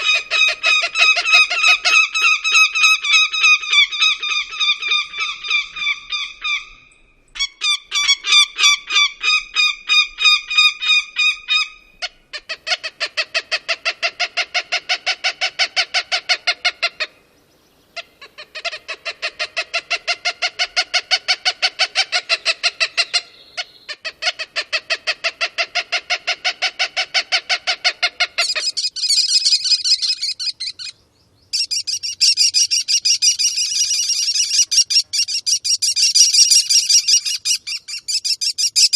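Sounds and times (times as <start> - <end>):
honking bird calls: 0.0 - 9.7, 18.0 - 38.9.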